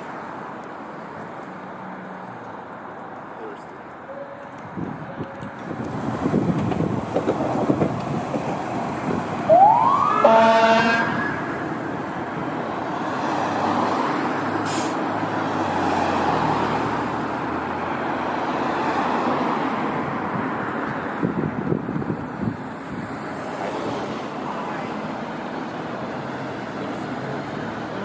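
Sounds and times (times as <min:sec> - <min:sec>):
passing truck and road noise: 0:00.0 - 0:28.0
fire engine siren: 0:09.2 - 0:11.8
horn blast: 0:10.2 - 0:11.3.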